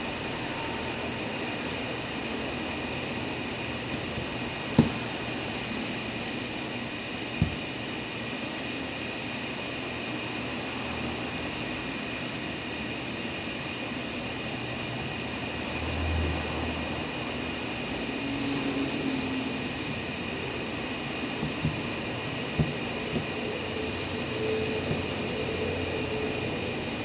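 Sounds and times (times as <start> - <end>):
short knock: 4.0 - 5.1, 7.4 - 7.7, 24.8 - 25.2
pressure washer running: 17.5 - 27.0.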